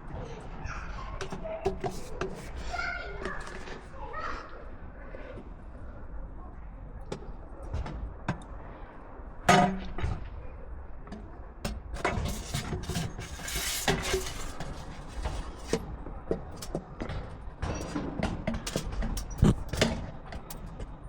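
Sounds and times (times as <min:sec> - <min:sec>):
short scrape: 0:12.0 - 0:15.8.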